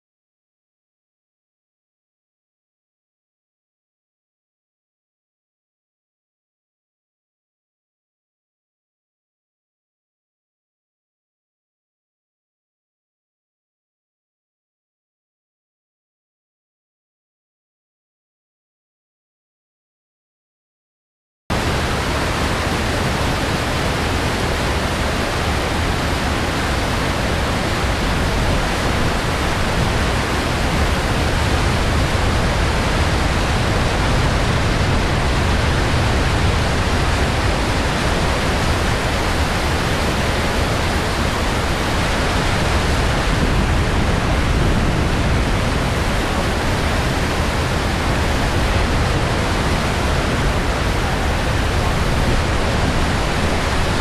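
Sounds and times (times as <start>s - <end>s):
whitewater rushing: 21.5s - 54.0s.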